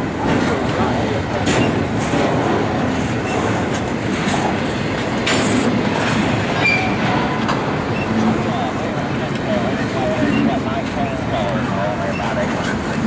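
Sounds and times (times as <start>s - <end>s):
freight train cars rolling past: 0.0s - 13.0s
high wheel squeals: 6.5s - 8.2s.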